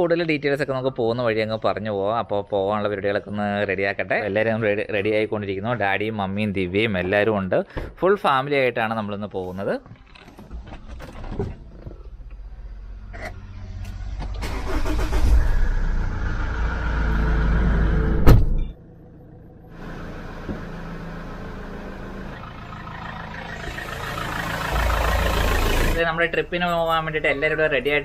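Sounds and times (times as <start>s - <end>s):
car engine running: 19.4s - 28.0s.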